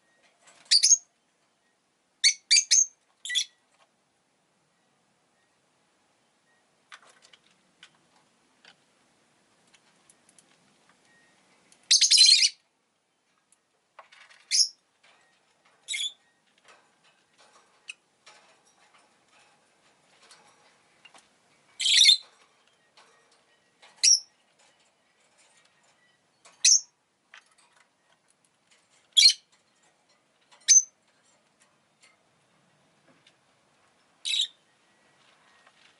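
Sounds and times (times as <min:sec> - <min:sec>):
lovebird chirping: 0:00.0 - 0:03.6, 0:11.1 - 0:13.3, 0:14.4 - 0:14.8, 0:15.8 - 0:16.4, 0:21.7 - 0:24.4, 0:25.6 - 0:27.0, 0:29.2 - 0:29.5, 0:30.6 - 0:31.0, 0:34.2 - 0:35.7.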